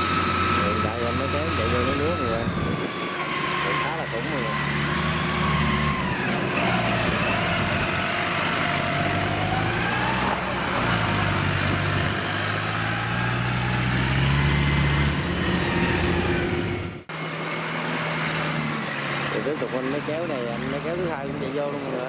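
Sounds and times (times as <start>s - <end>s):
wavering whine: 0.0s - 8.0s
tractor engine under load: 0.0s - 22.0s.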